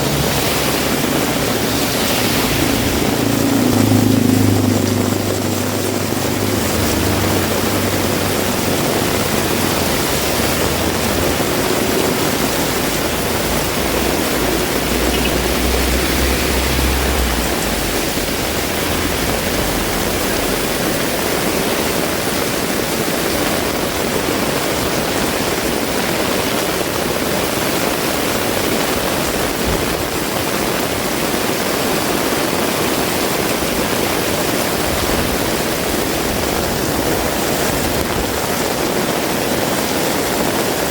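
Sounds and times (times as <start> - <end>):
passing vehicle engine rumble: 0.0 - 25.7
heavy rain falling: 0.0 - 40.9.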